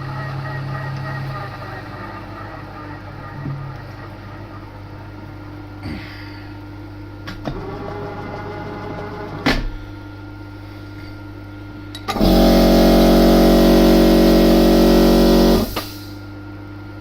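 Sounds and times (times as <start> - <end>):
machine hum: 0.0 - 17.0
loud electric motor running: 12.1 - 16.0.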